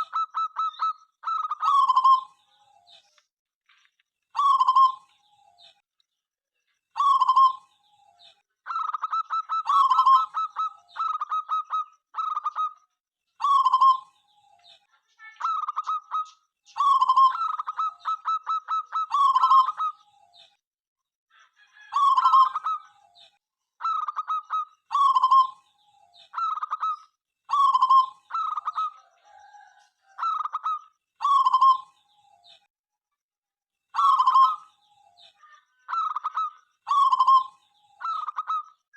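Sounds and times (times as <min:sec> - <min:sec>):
doves cooing: 0:00.0 - 0:02.4, 0:07.0 - 0:08.0, 0:08.7 - 0:12.8, 0:13.4 - 0:14.5, 0:16.8 - 0:20.2, 0:23.8 - 0:25.6, 0:26.3 - 0:32.2, 0:34.0 - 0:34.7, 0:35.9 - 0:38.7.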